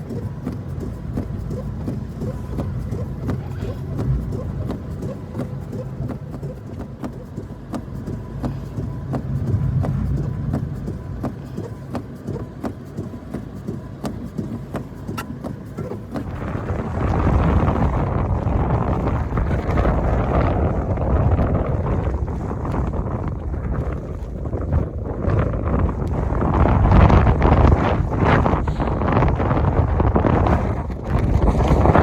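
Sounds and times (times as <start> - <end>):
sharp ticks and clicks: 0.0 - 18.2
wind rumbling on microphone: 0.0 - 32.0.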